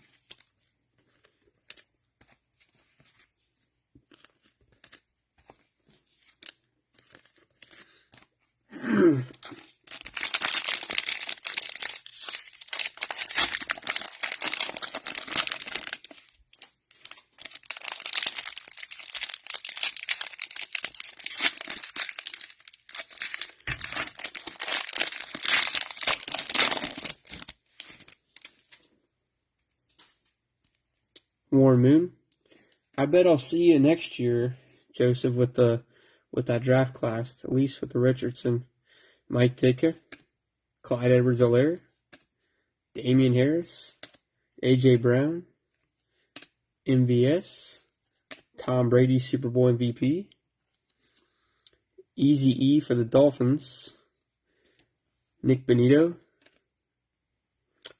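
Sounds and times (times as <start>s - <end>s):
cellophane wrappers tearing and crinkling: 9.4s - 28.5s.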